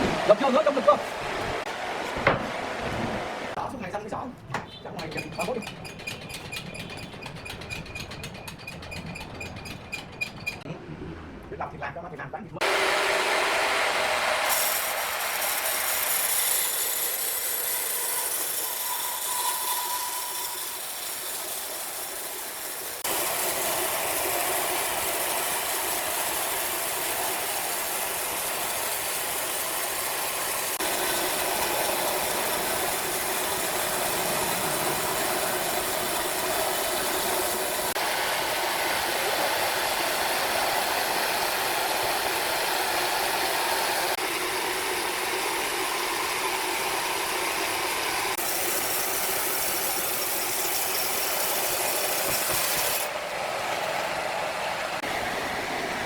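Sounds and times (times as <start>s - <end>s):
heavy machinery running: 30.3s - 38.0s.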